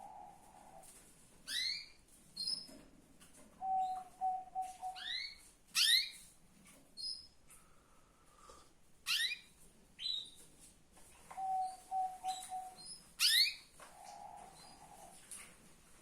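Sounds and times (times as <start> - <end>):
canary chirping: 1.4 - 2.8, 3.6 - 6.3, 7.0 - 7.4, 9.0 - 10.4, 11.4 - 15.1.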